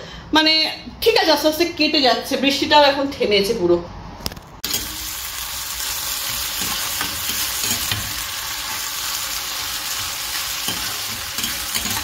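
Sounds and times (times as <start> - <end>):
metal spatula scraping: 4.6 - 5.2, 5.8 - 12.0
vegetables sizzling in hot oil: 4.6 - 12.0.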